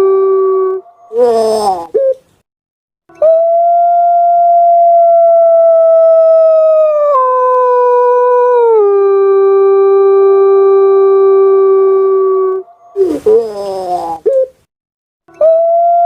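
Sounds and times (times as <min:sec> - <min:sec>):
dove long call: 0:00.8 - 0:02.2, 0:12.7 - 0:14.6.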